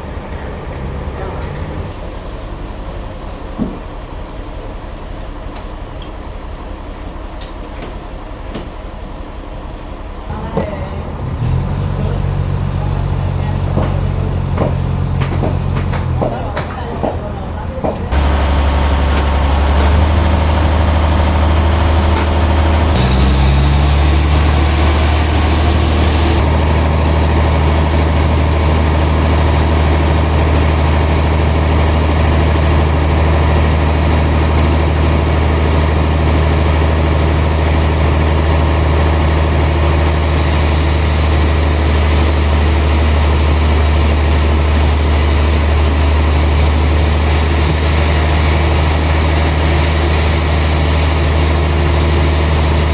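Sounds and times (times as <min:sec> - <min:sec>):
sawmill engine drone: 0:00.0 - 0:52.9
hiss: 0:23.0 - 0:26.5, 0:40.0 - 0:48.4, 0:49.0 - 0:52.9.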